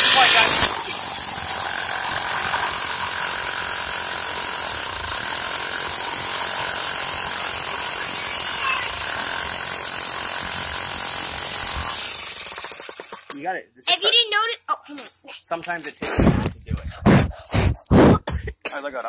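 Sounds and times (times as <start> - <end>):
jackhammer hammering into rock: 0.0 - 13.4.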